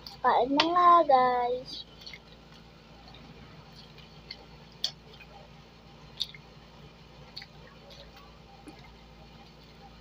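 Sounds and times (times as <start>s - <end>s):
mouth clicks and smacks chewing: 1.9s - 5.4s, 6.1s - 6.5s, 7.2s - 9.0s.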